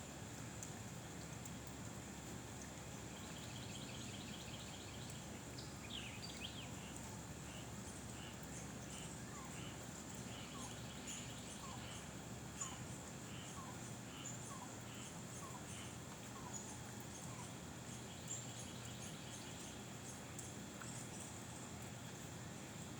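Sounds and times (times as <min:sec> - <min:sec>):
low background noise: 0:00.0 - 0:22.9
small birds calling: 0:03.2 - 0:19.8.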